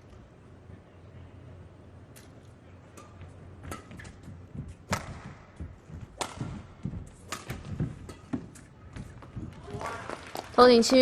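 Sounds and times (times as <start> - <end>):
rackets striking shuttlecock: 2.9 - 9.6.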